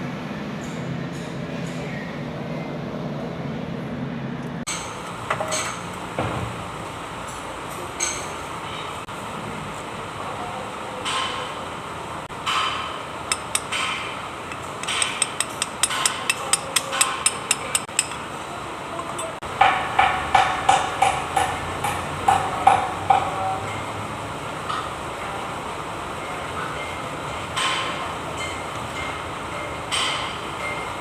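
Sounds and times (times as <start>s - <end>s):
hammer striking metal: 12.4s - 18.3s, 19.0s - 23.9s, 27.6s - 30.9s.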